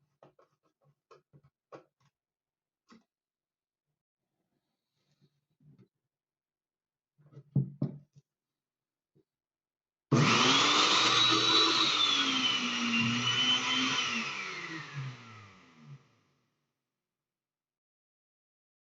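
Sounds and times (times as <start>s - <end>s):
blender motor whining: 10.1s - 16.1s.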